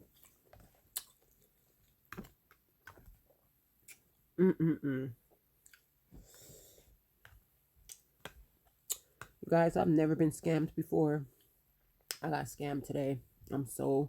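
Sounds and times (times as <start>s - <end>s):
chewing noodles: 0.1s - 2.0s
person humming: 4.4s - 5.2s.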